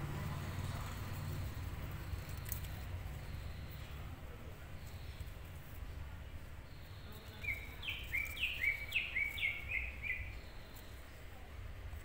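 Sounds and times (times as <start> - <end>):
low background rumble: 0.0 - 4.3.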